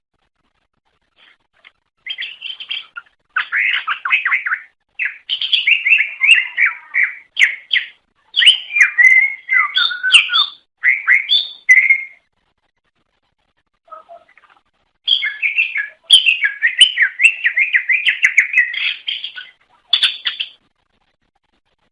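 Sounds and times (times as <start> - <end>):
bird singing chirps and whistles: 2.0 - 12.2, 15.1 - 20.6.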